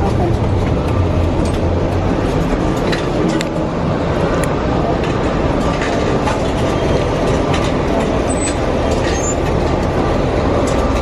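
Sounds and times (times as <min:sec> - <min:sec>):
moving bus running: 0:00.0 - 0:11.0
high squeaks: 0:08.2 - 0:09.5.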